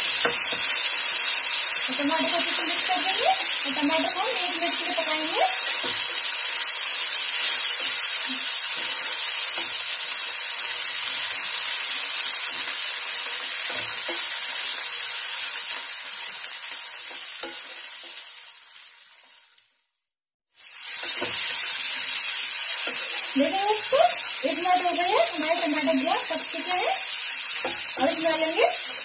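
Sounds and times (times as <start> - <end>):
vegetables sizzling in hot oil: 0.0 - 29.0
spatula stirring and scraping pan: 1.9 - 18.4, 20.6 - 29.0.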